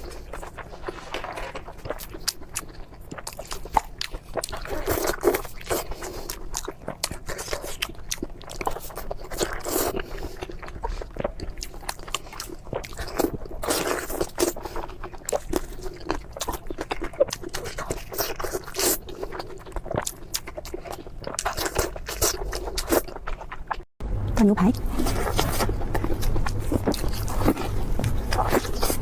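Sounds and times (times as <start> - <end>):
crispy food crunching: 0.0 - 23.9, 24.7 - 29.0.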